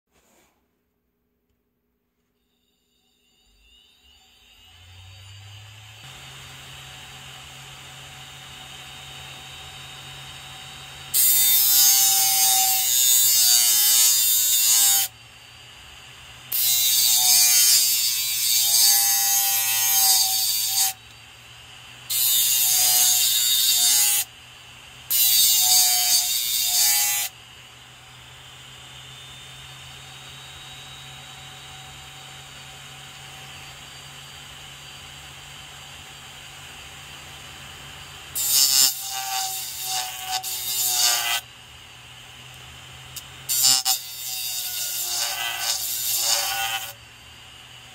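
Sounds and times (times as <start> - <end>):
spindle motor hum: 3.4 - 11.2.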